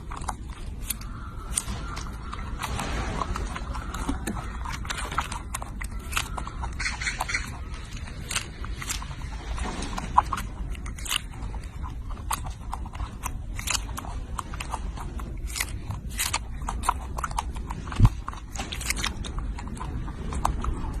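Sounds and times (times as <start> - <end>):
low rumble: 0.0 - 21.0
monkey chewing: 0.0 - 21.0.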